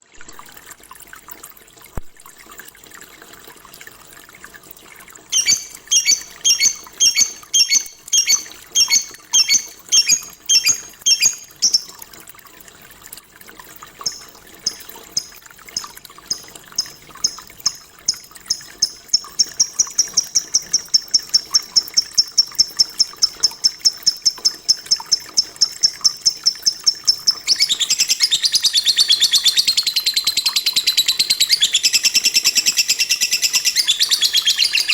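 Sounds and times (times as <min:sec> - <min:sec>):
lovebird chirping: 0:05.3 - 0:12.0, 0:14.0 - 0:20.8, 0:27.1 - 0:34.9.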